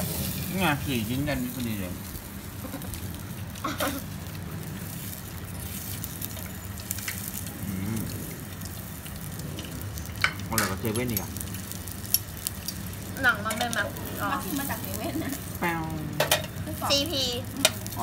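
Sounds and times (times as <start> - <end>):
sausages sizzling in a frying pan: 0.0 - 18.0
forks clattering against a pan: 10.2 - 11.3, 16.2 - 16.6.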